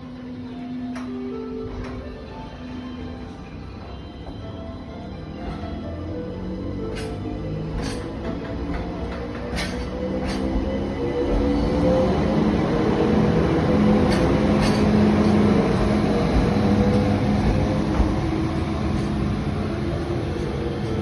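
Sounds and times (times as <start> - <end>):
train rumbling: 0.0 - 21.0.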